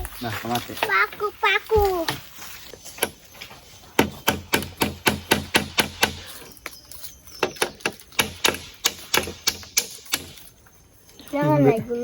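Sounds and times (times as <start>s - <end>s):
hammer hitting nail: 4.0s - 6.2s, 7.4s - 10.4s.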